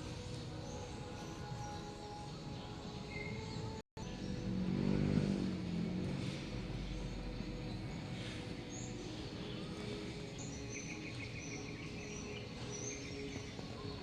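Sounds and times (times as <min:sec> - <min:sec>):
bird trill: 0:00.0 - 0:04.6, 0:05.7 - 0:14.0
small birds chirping: 0:00.0 - 0:14.0.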